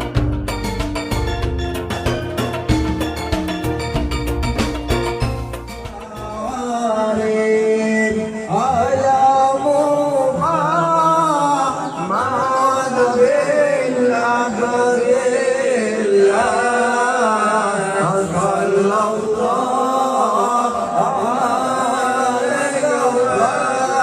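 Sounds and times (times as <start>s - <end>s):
instrumental accompaniment: 0.0s - 6.8s.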